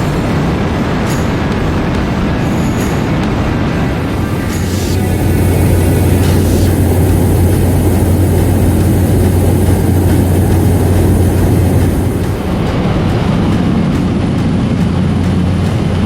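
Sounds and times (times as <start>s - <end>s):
vehicle engine drone: 3.1s - 16.0s.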